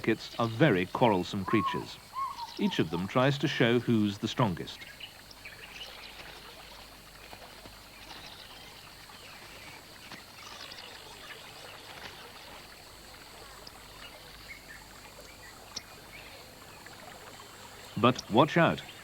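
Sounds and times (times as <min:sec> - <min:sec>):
soft watery hiss: 0:00.0 - 0:19.0
bird chirps and calls: 0:00.2 - 0:06.0.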